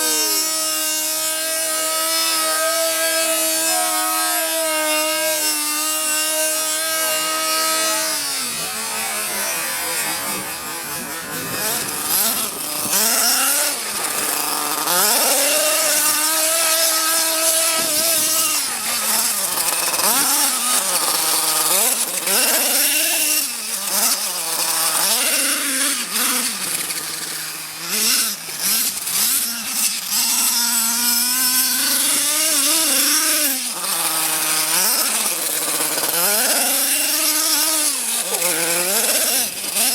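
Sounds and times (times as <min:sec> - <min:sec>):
small nitro engine revving: 0:00.0 - 0:39.9.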